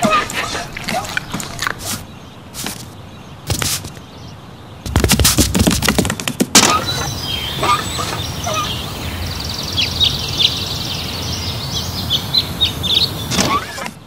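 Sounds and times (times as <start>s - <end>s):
birds chirping: 0.0s - 14.0s
fast bird trill: 6.6s - 13.8s.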